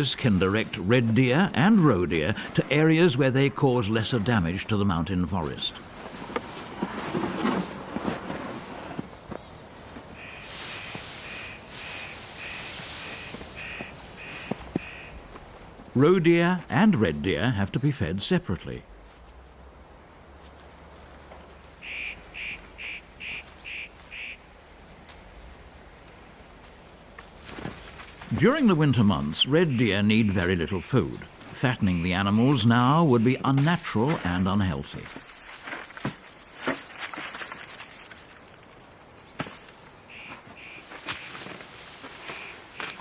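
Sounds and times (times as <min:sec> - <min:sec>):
bird calling: 0:05.7 - 0:15.6, 0:21.4 - 0:27.0, 0:28.6 - 0:33.5, 0:39.3 - 0:43.0
bird calling in short notes: 0:21.8 - 0:24.4.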